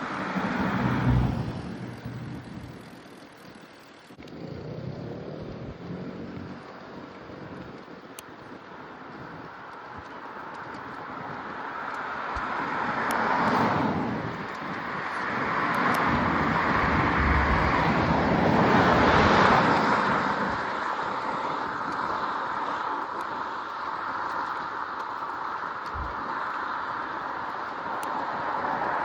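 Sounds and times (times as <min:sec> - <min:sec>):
vehicles passing on road: 0:00.0 - 0:29.0.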